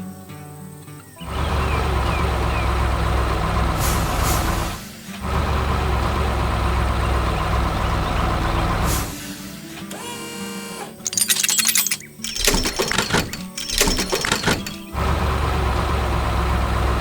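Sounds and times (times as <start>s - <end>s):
heavy machine engine rumbling: 1.3s - 9.6s, 12.3s - 17.0s.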